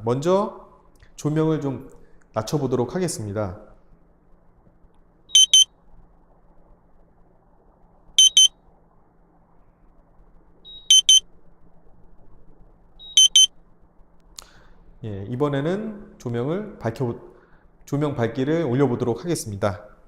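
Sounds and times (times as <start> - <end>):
high-pitched double beep: 5.3 - 5.7, 8.2 - 8.5, 10.7 - 11.2, 13.0 - 13.5.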